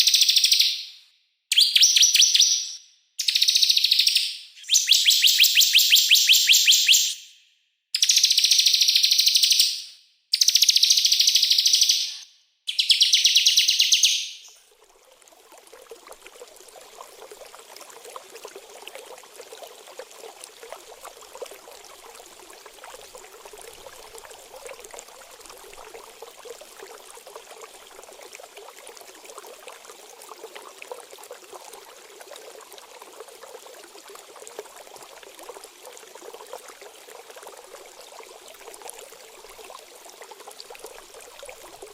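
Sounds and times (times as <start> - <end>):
songbird song: 0.0 - 14.6
trickle of running water: 12.8 - 41.9.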